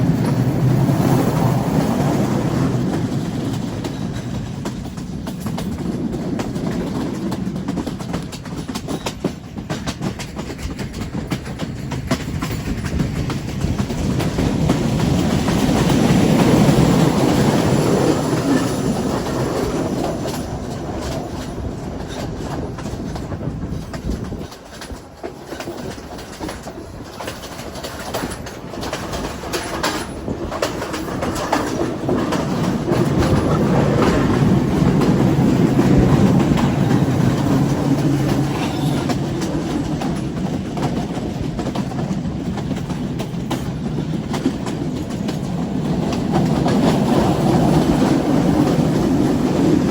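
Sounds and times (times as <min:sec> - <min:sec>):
passenger train rumbling: 0:00.0 - 0:49.9
wheels clacking over rail joints: 0:00.0 - 0:49.9.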